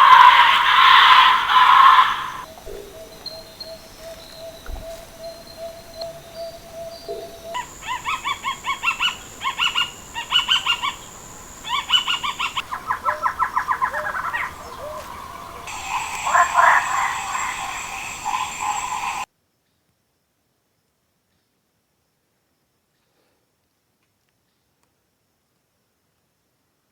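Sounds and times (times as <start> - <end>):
birds calling: 0.0 - 19.3
steady high-pitched tone: 15.7 - 19.3.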